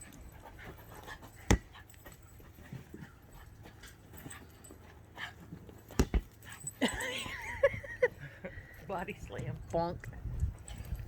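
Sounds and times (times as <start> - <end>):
sharp thump: 1.5 - 1.7.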